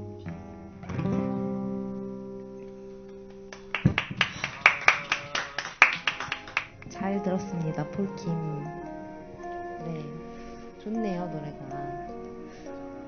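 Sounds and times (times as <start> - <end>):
acoustic guitar chord ringing: 0.0 - 3.8
people clapping: 3.2 - 7.1.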